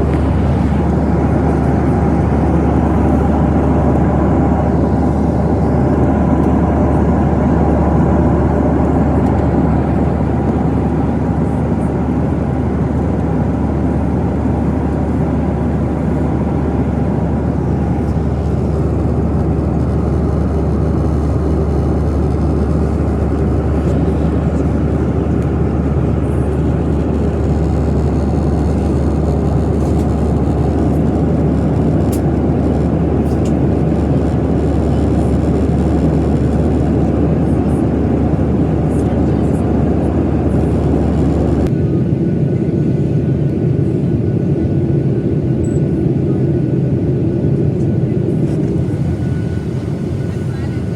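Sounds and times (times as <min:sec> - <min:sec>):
rushing air: 0:00.0 - 0:06.0
jet engines droning: 0:00.0 - 0:50.9.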